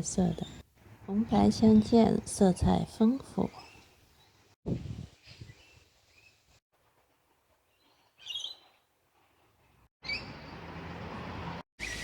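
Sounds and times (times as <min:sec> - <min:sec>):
wild birds chirping: 0:03.4 - 0:04.6, 0:07.7 - 0:11.2.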